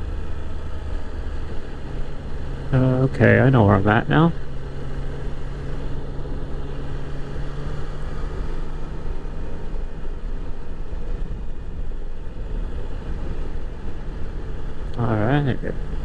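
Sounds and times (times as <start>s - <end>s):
motorcycle engine running: 0.0s - 16.0s
road rumble: 0.0s - 16.0s
wind noise on microphone: 9.7s - 15.0s.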